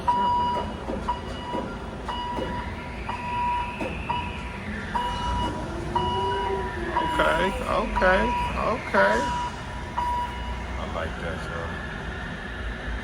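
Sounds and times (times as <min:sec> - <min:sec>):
machine running noise: 0:00.0 - 0:13.0
machine whine: 0:00.0 - 0:13.0
warning beeper: 0:02.2 - 0:11.0.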